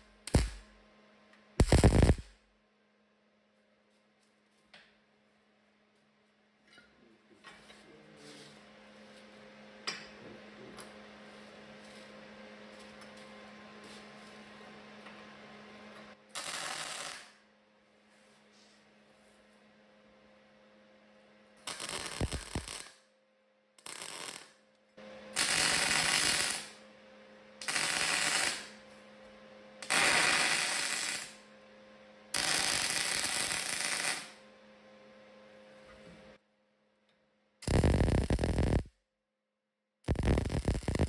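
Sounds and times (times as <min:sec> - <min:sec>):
welding arc bursts: 0:00.0 - 0:00.7, 0:01.6 - 0:02.4, 0:16.3 - 0:17.4, 0:21.6 - 0:23.0, 0:23.8 - 0:24.6, 0:25.4 - 0:26.8, 0:27.6 - 0:28.8, 0:29.8 - 0:31.4, 0:32.4 - 0:34.4, 0:37.6 - 0:38.9, 0:40.1 - 0:41.0
low hum: 0:01.6 - 0:02.4.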